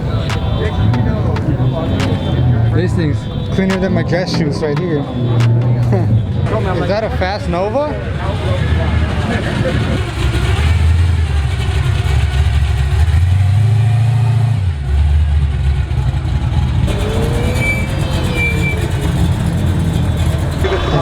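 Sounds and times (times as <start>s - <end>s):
car engine rumbling: 0.0s - 21.0s.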